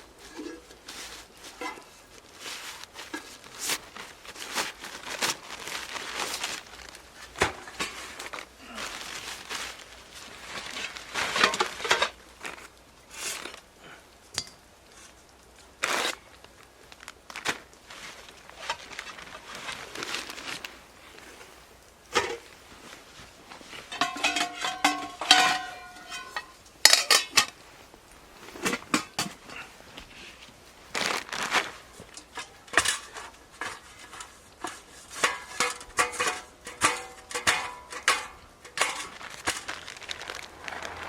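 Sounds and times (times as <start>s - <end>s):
crinkly material crumpled and torn: 0.0s - 13.9s, 14.8s - 41.0s.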